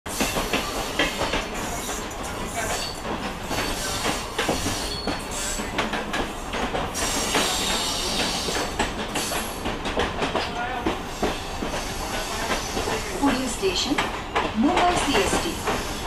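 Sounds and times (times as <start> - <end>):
train wheels clattering over track: 0.1 - 16.0
high wheel squeals: 3.6 - 5.6.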